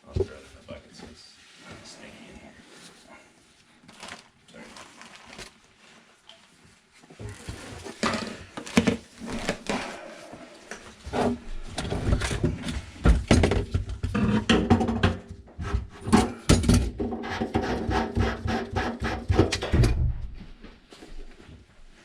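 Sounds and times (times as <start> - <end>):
plumbing parts and tools clattering: 11.2 - 17.6.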